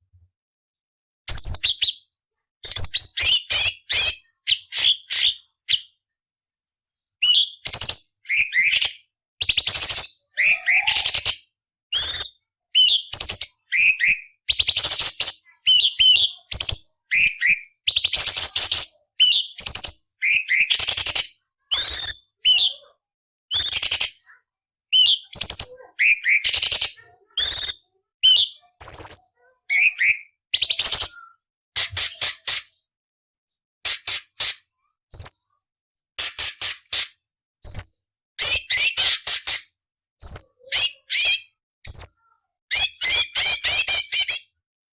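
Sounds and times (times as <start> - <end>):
bird singing whistled notes: 7.2 - 11.3, 11.9 - 21.1, 24.9 - 31.4
bird harsh scratchy chattering: 31.8 - 32.8, 33.8 - 34.6, 36.2 - 37.2.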